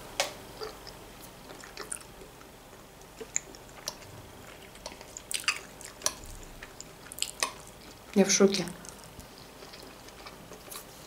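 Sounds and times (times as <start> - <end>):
person chewing food: 0.5 - 11.0.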